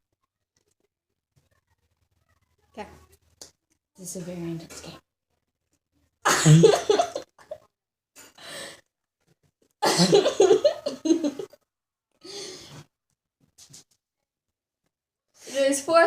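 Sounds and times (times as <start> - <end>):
girl coughing: 6.3 - 7.1, 9.8 - 10.4.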